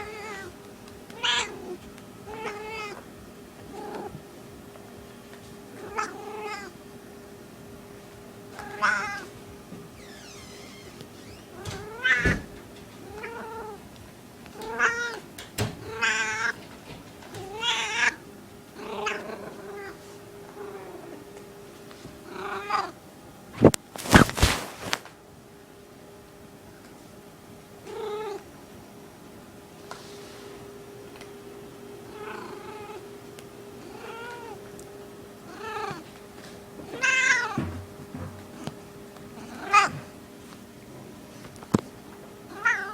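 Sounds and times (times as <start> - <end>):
cat meowing: 0.0 - 0.5, 1.1 - 3.0, 5.8 - 6.7, 8.6 - 9.3, 10.0 - 12.4, 13.0 - 13.8, 14.6 - 15.2, 15.8 - 16.6, 17.4 - 18.2, 33.8 - 34.6, 35.5 - 36.0, 36.9 - 37.6, 42.5 - 42.9
faint steady hum: 0.0 - 42.9.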